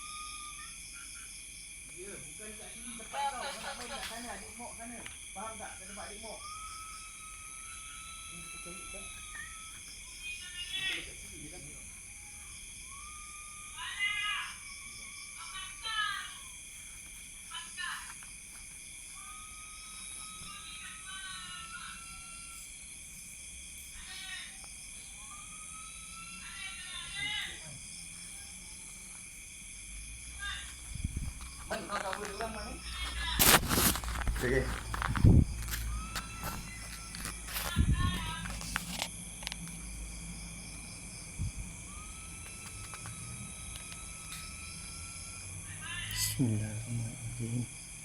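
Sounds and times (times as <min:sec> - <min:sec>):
faint wavering tone: 0:00.0 - 0:00.8, 0:06.2 - 0:09.8, 0:41.5 - 0:45.6
night insects chirring: 0:00.0 - 0:48.0.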